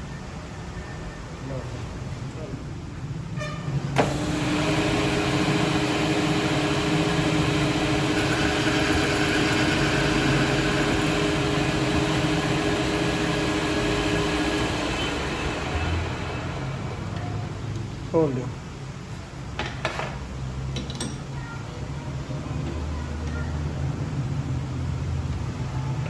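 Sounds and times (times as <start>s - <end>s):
two-tone machine hum: 3.4s - 18.1s
workshop machine hissing: 3.8s - 18.3s.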